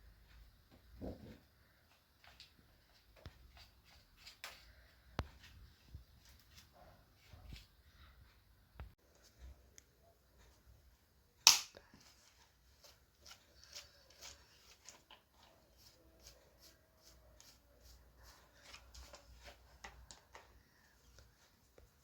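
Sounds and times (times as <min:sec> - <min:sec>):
sharp click of vacuum parts: 0:11.5 - 0:11.8.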